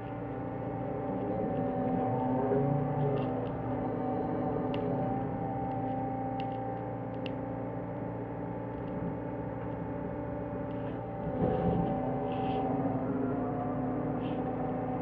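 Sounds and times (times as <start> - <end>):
diesel engine running: 7.6 - 15.0.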